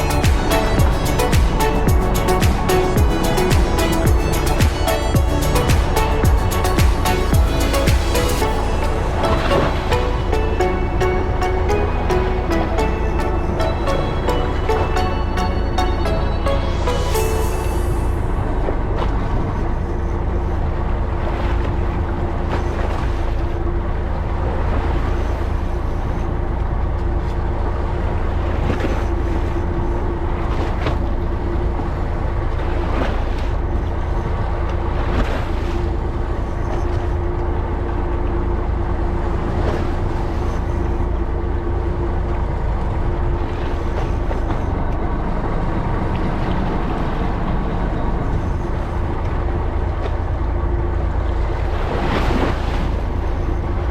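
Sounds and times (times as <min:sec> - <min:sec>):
boat engine rumbling: 0:00.0 - 0:53.9
water splashing against hull: 0:18.3 - 0:53.9.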